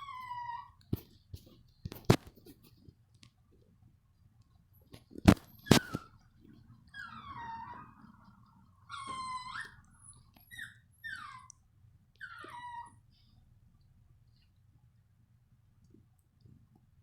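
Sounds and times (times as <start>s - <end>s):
puppy whining: 0.0s - 1.1s, 5.3s - 13.4s.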